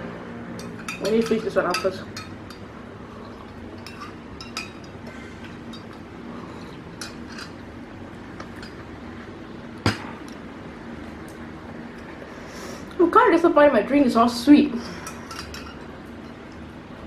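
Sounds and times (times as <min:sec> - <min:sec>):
cutlery clinking on tableware: 0:00.6 - 0:02.6.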